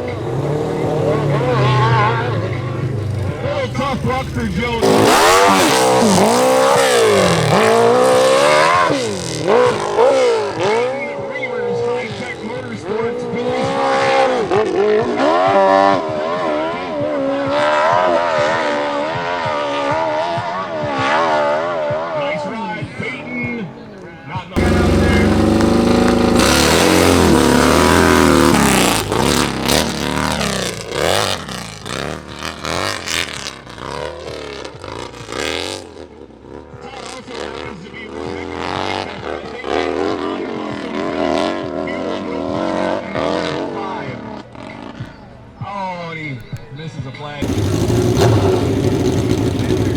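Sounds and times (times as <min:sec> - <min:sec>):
motorcycle engine at high revs: 0:00.0 - 0:11.2, 0:24.6 - 0:43.8, 0:47.4 - 0:49.9.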